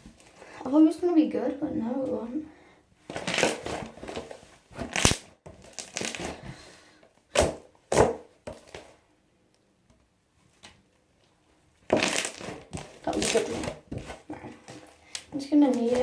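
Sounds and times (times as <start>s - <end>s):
slime squeezed and stretched: 3.1s - 4.2s, 4.8s - 6.4s, 11.9s - 14.3s.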